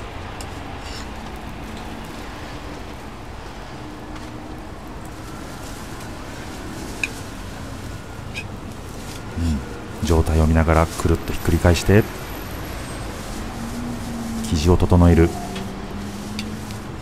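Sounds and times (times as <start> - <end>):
gentle sizzle of frying: 0.0 - 9.4.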